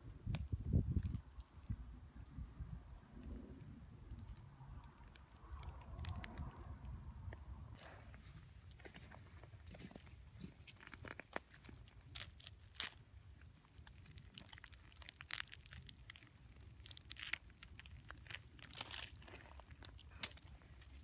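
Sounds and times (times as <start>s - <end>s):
crunching and crinkling: 0.0s - 7.0s, 7.7s - 21.0s.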